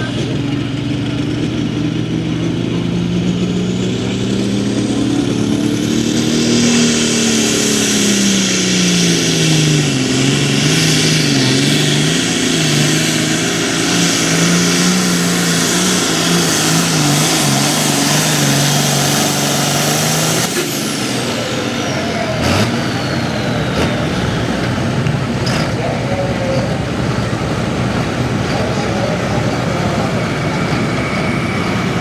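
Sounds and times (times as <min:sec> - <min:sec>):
tractor diesel engine under load: 0:00.0 - 0:32.0
strong hiss: 0:05.2 - 0:32.0.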